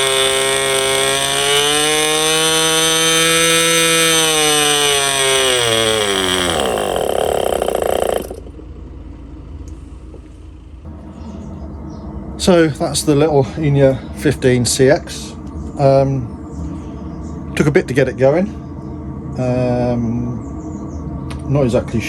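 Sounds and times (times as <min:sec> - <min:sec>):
model glow engine running: 0:00.0 - 0:08.9.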